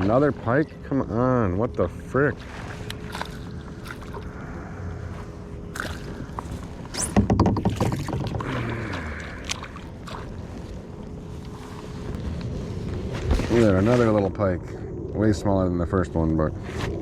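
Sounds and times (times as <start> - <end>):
water splashing: 2.0 - 4.6, 5.7 - 11.0
knocks and clicks on kayak: 7.0 - 8.6.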